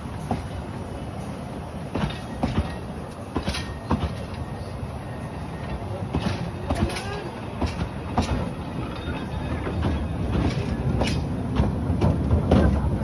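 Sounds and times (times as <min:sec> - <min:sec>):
train running with clatter: 0:00.0 - 0:13.0.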